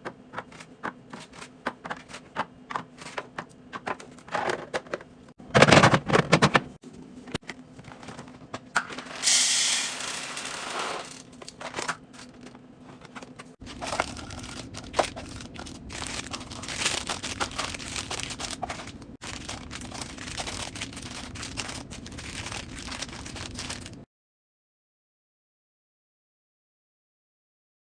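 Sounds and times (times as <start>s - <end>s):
plastic packaging crinkling: 13.2s - 24.0s.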